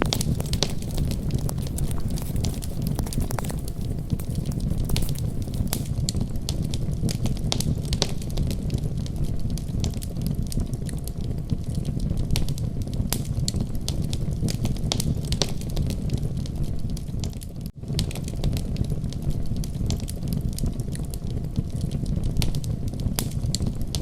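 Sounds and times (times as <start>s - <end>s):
wood fire crackling: 0.0s - 6.0s.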